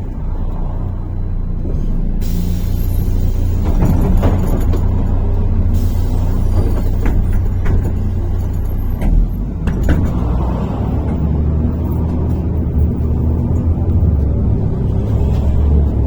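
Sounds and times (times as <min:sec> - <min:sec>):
bus engine and road drone: 0:00.0 - 0:16.0
body knocks and rattles: 0:03.6 - 0:05.2, 0:06.5 - 0:14.4.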